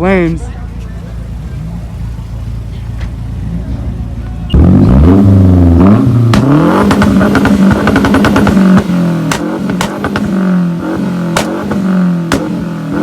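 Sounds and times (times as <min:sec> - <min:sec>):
engine revving hard: 0:04.5 - 0:13.0
exhaust pops and cracks: 0:06.3 - 0:10.4, 0:11.3 - 0:12.6.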